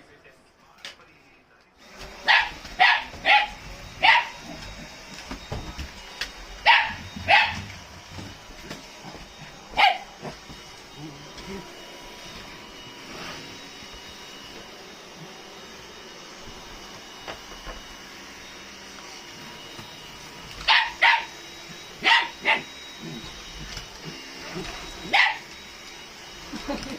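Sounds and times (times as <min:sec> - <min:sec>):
vacuum cleaner humming: 0:01.8 - 0:26.9
dog barking: 0:02.2 - 0:04.5, 0:06.6 - 0:07.7, 0:09.8 - 0:10.3, 0:20.7 - 0:21.3, 0:22.0 - 0:22.7, 0:25.1 - 0:25.5.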